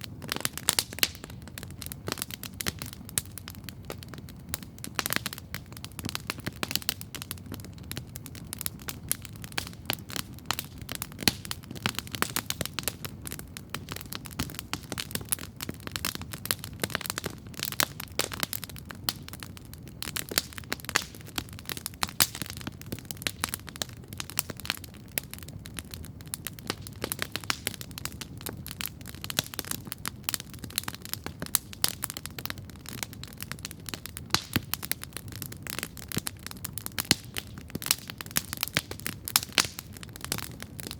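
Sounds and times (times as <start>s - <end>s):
campfire crackling and popping: 0.0s - 40.9s.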